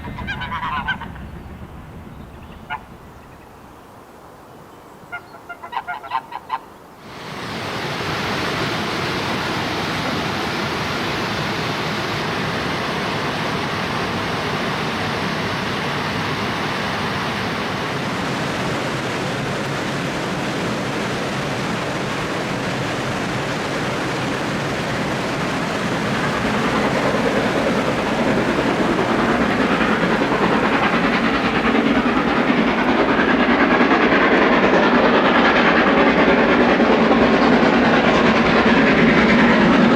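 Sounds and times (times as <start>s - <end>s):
geese honking: 0.0s - 3.6s, 5.1s - 6.7s, 24.5s - 34.2s
steam locomotive hauling train: 0.0s - 4.5s, 7.0s - 39.9s.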